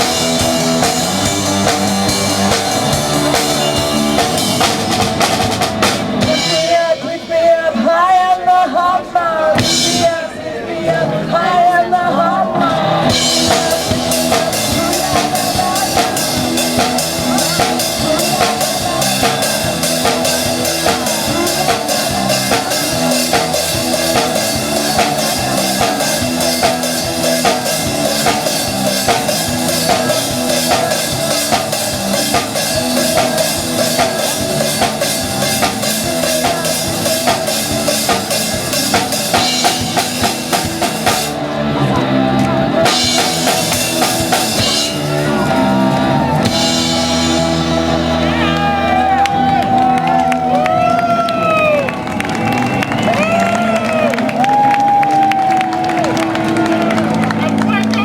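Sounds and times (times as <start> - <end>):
drum kit beat: 0.0 - 7.3, 13.0 - 50.9
live band playing: 0.0 - 8.2, 9.6 - 10.2, 12.3 - 58.0.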